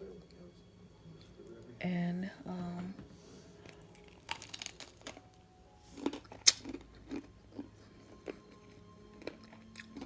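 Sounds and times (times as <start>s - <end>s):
soft chewing: 3.4s - 10.0s
person biting with a crunch: 6.0s - 7.3s.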